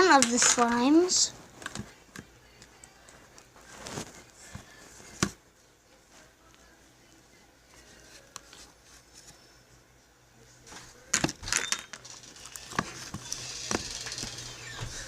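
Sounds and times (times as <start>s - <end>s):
rustling: 3.6s - 5.2s.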